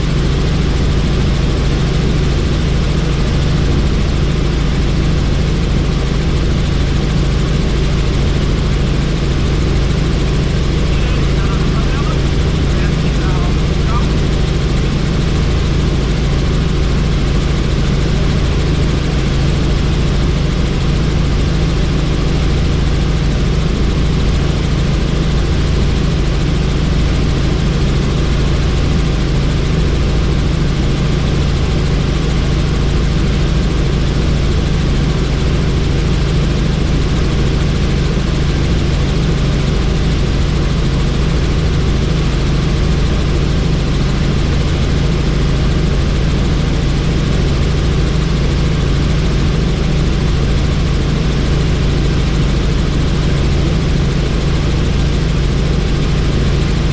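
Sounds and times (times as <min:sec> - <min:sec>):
helicopter rotor and engine drone: 0:00.0 - 0:56.9.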